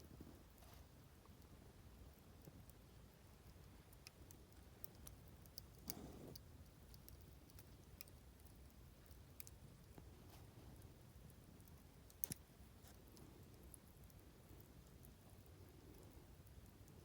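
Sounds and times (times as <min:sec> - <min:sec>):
campfire crackling and popping: 0:03.5 - 0:10.1, 0:11.1 - 0:15.2.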